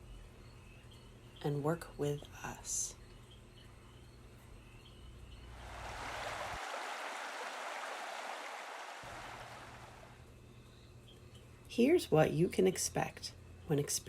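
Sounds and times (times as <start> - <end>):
rushing water: 5.6 - 10.2.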